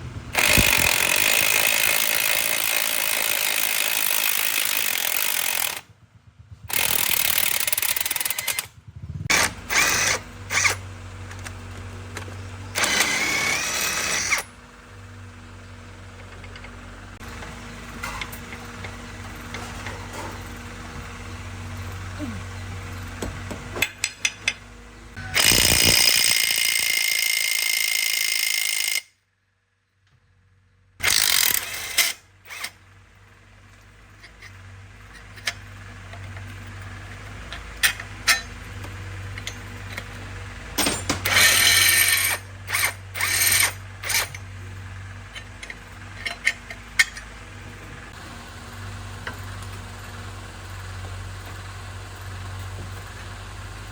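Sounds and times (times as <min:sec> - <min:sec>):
low steady engine hum: 0:00.0 - 0:03.0, 0:03.7 - 0:25.4, 0:31.8 - 0:53.9
power tool bursts: 0:00.4 - 0:05.8, 0:06.7 - 0:08.7, 0:09.3 - 0:10.8, 0:12.7 - 0:14.5, 0:25.2 - 0:29.1, 0:31.0 - 0:32.8, 0:40.8 - 0:44.4
metal tools clicking: 0:06.7 - 0:08.7, 0:40.8 - 0:44.5, 0:45.3 - 0:47.3.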